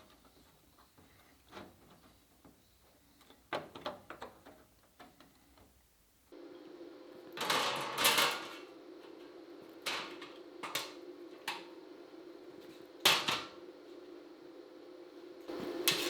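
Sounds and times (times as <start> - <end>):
machine hum: 6.3 - 16.0.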